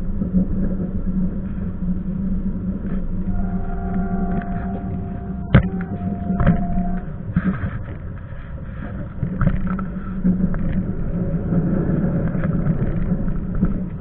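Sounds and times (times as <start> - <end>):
train rumbling: 0.0 - 14.0
train knocks: 3.3 - 7.2.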